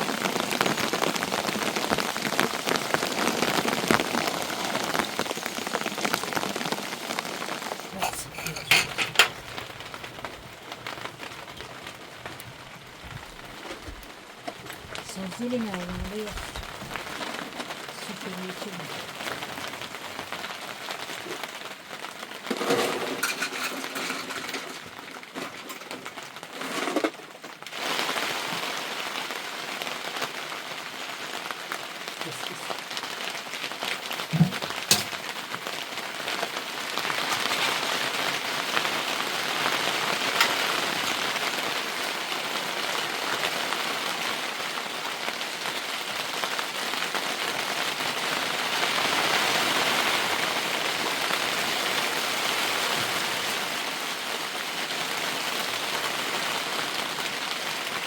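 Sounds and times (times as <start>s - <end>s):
heavy rain: 0.0s - 58.0s
sharp knocks: 34.3s - 35.2s.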